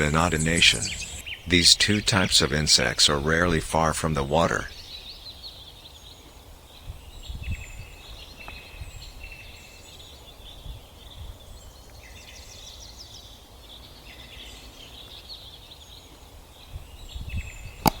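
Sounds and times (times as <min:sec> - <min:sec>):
small birds chirping and trilling: 0:00.0 - 0:01.7, 0:04.7 - 0:17.9
low wind rumble: 0:16.7 - 0:18.0.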